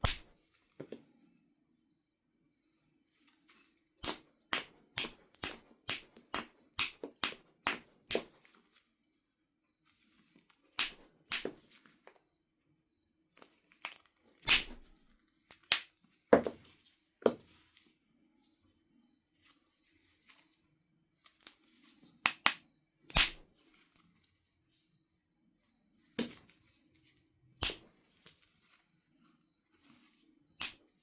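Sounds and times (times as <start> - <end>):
knapping tool tapping flint: 4.0 - 8.5, 22.2 - 23.5, 27.6 - 28.5.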